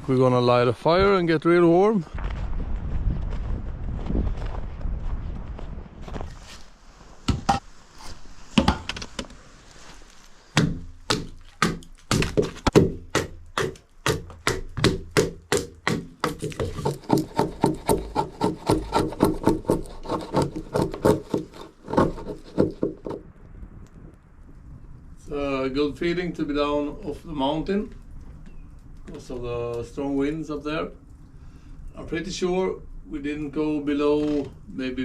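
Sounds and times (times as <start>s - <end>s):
axe chopping firewood: 10.5s - 23.2s.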